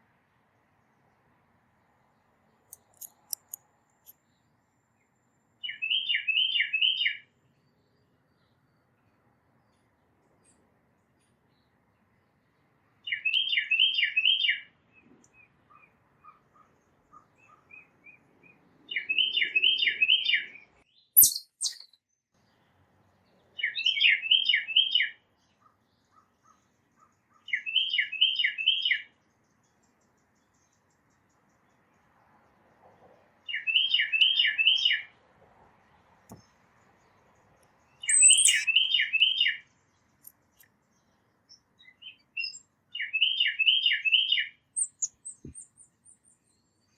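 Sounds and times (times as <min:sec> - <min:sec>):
songbird singing: 0:02.0 - 0:32.6, 0:33.4 - 0:35.2, 0:36.3 - 0:46.9
sharp click: 0:02.8 - 0:03.6
bird call notes: 0:38.1 - 0:39.0.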